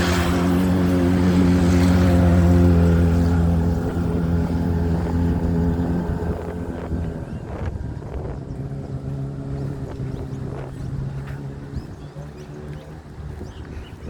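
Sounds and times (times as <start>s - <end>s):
motorboat engine passing: 0.0s - 14.0s.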